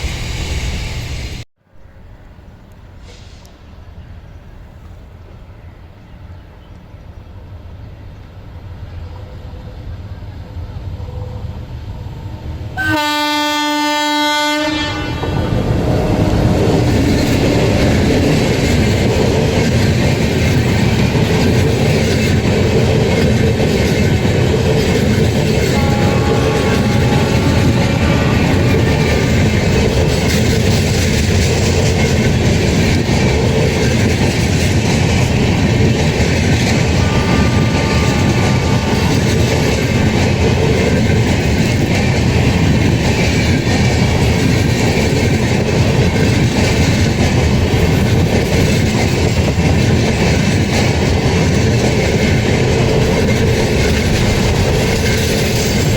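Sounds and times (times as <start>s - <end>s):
train passing rumble: 0.0s - 55.9s
train horn: 12.8s - 16.9s, 25.6s - 29.7s, 36.8s - 39.8s.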